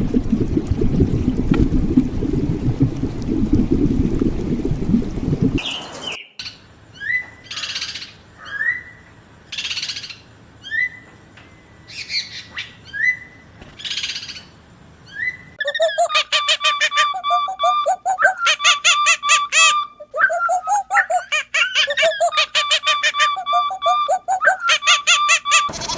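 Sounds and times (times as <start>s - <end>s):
bird fast pulsed notes: 15.6s - 25.9s.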